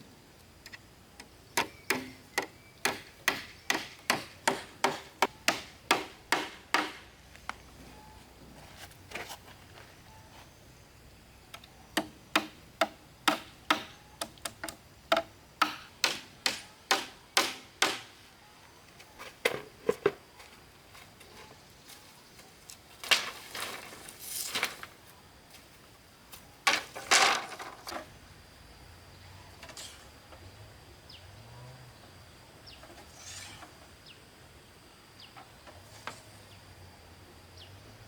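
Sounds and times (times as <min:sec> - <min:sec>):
rustling and scraping: 0:07.3 - 0:10.6, 0:18.9 - 0:28.1, 0:29.6 - 0:30.4, 0:32.7 - 0:34.0, 0:35.4 - 0:36.5.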